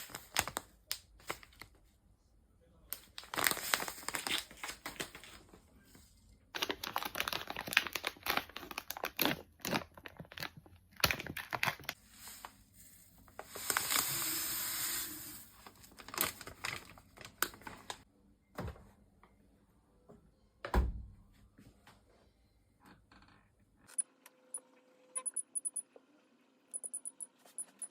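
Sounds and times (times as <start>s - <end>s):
rustling and crinkling: 3.0s - 14.1s.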